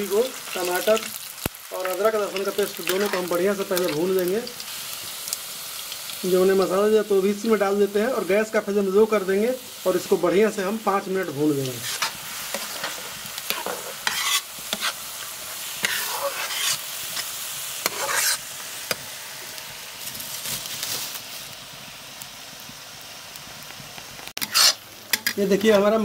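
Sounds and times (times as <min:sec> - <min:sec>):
masala sizzling in oil: 0:00.0 - 0:26.0
spoon stirring and scraping pan: 0:11.7 - 0:19.0, 0:24.4 - 0:25.8.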